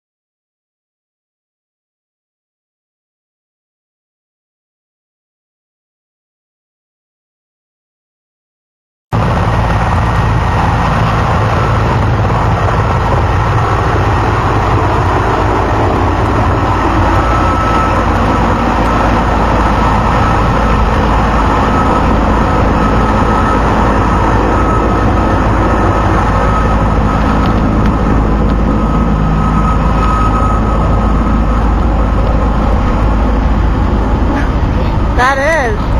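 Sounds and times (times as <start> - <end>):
helicopter engines and rotor: 9.1 - 35.9.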